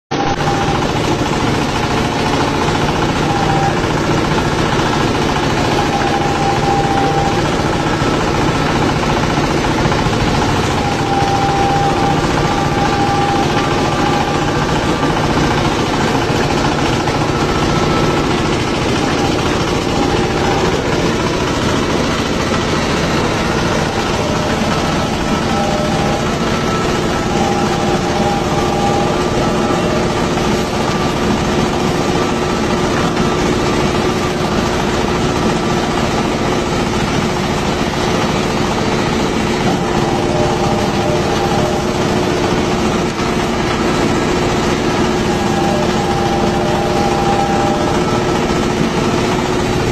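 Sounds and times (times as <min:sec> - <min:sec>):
peeling machine drone: 0:00.1 - 0:49.9.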